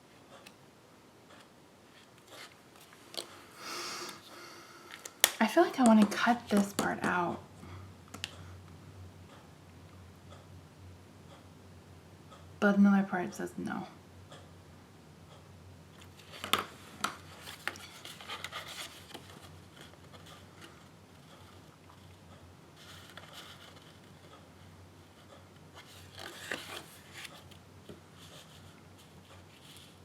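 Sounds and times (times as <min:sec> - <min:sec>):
paper rustling: 0:16.1 - 0:20.8, 0:25.8 - 0:27.6.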